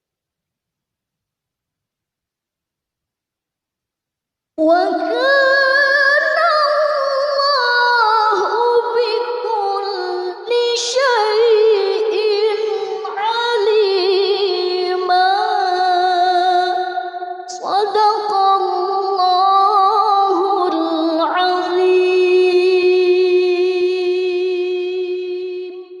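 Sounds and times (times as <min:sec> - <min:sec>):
woman reciting melodically: 0:04.6 - 0:26.0.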